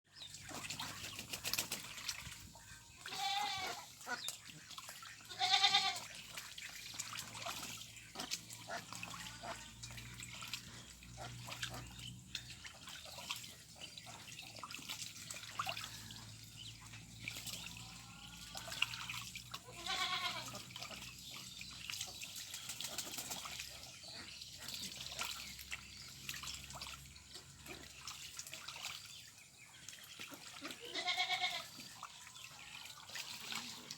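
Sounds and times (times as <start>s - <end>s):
small splashes in water: 0.1s - 33.9s
ducks quacking: 2.2s - 13.4s, 17.9s - 21.1s.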